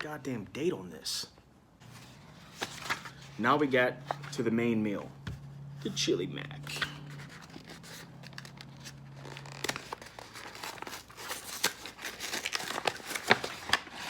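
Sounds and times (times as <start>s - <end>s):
plastic packaging crinkling: 6.8s - 14.0s.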